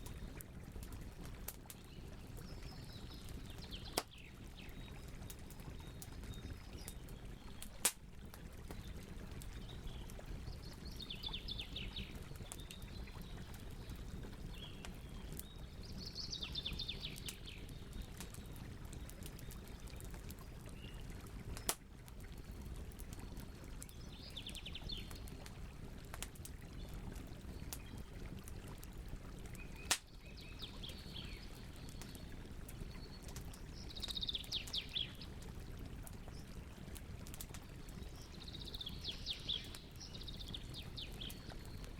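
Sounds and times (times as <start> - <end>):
fire popping: 0.0 - 10.2, 21.3 - 24.0, 24.9 - 30.1
campfire crackling: 0.0 - 41.9
songbirds singing: 1.8 - 7.8, 8.6 - 21.8, 22.4 - 25.4, 26.7 - 28.2, 29.5 - 35.4, 37.7 - 41.9.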